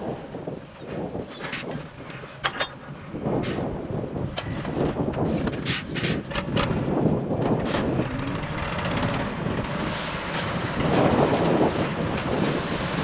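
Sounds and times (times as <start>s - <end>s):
diesel machine rumbling: 6.2s - 13.0s
broad rushing hiss: 9.8s - 13.0s
short sharp hisses: 9.9s - 10.4s.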